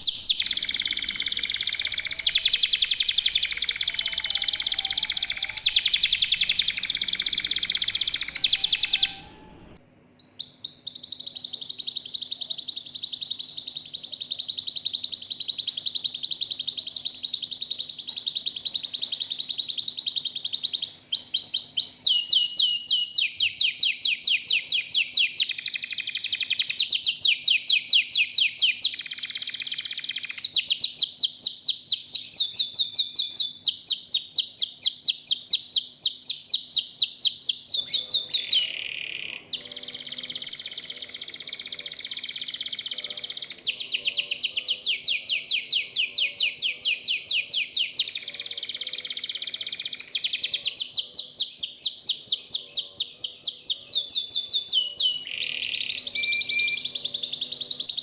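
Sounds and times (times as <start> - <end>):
faint steady hum: 0.0 - 12.3
canary singing trills: 0.0 - 58.0.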